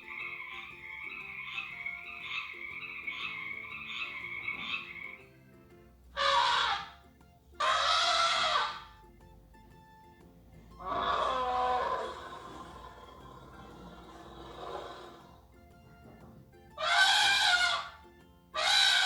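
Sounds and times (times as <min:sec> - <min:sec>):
frog croaking trill: 0:00.0 - 0:05.2, 0:06.2 - 0:07.0, 0:07.6 - 0:09.0, 0:10.8 - 0:15.4, 0:16.8 - 0:19.0
rasping breathy bursts: 0:10.7 - 0:15.4.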